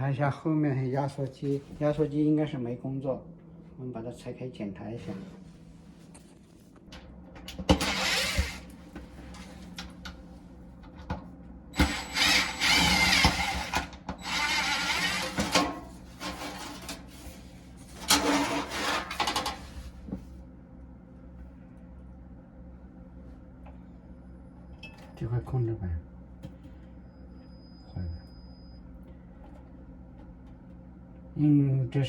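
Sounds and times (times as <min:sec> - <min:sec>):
power screwdriver whining: 0:07.8 - 0:08.7, 0:11.8 - 0:15.4.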